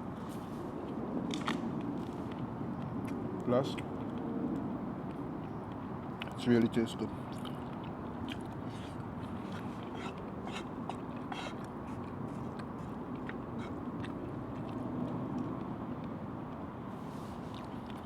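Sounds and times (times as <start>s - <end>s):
steady background noise: 0.0s - 18.0s
person chewing: 7.3s - 15.7s, 17.4s - 18.0s.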